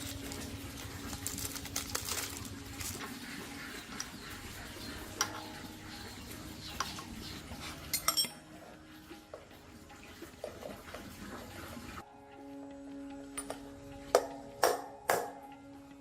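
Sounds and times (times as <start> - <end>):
light metallic clinks: 7.9 - 8.4.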